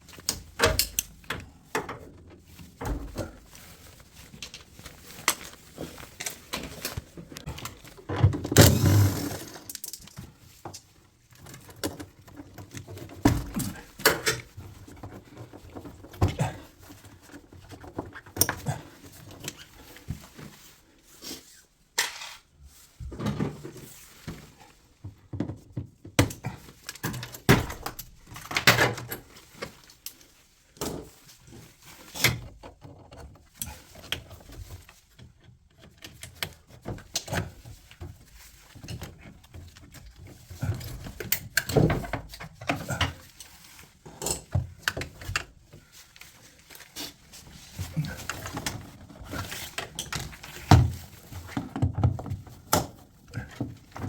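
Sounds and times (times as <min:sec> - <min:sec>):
tools and hard parts clattering: 0:00.2 - 0:19.7, 0:35.8 - 0:54.0.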